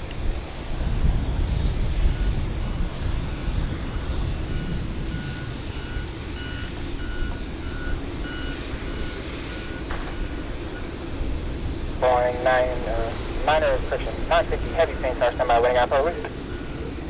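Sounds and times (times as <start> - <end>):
reversing alarm beeping: 3.4 - 10.9.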